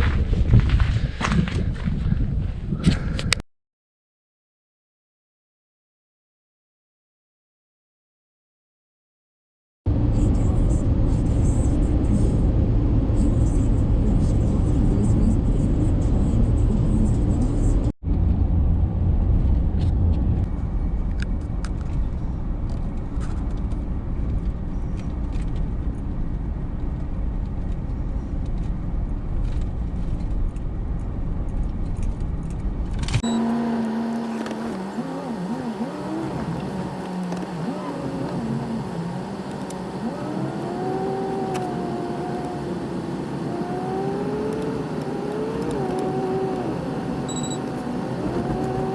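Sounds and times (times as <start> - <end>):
truck driving rumble: 9.9 - 48.9.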